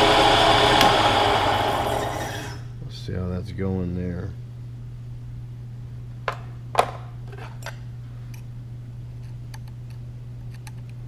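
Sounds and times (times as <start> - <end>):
milling machine humming: 0.0 - 2.7.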